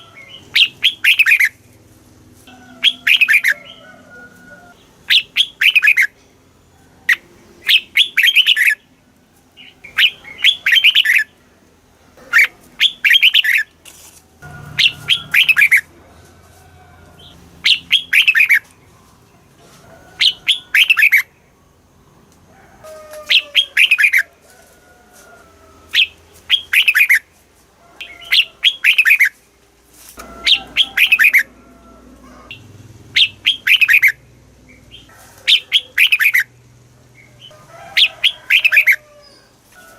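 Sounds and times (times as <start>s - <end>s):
bird singing whistled notes: 0.6s - 1.6s, 5.1s - 6.1s, 7.6s - 8.8s, 9.8s - 11.3s, 12.8s - 13.6s, 14.8s - 15.8s, 17.6s - 18.7s, 20.2s - 21.3s, 26.0s - 27.2s, 33.2s - 34.2s.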